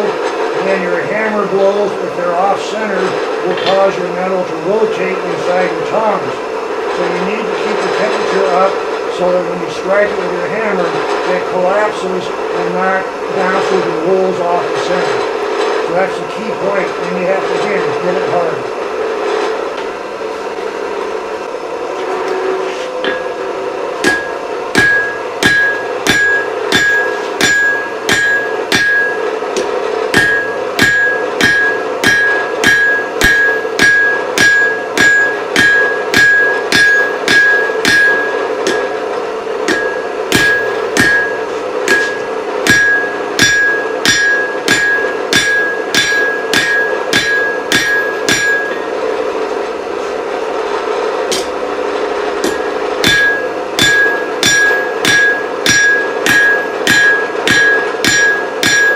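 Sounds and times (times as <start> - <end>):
steady hum: 0.0 - 58.9
hammer striking steel on anvil: 23.0 - 49.0, 51.3 - 51.6, 52.4 - 58.9.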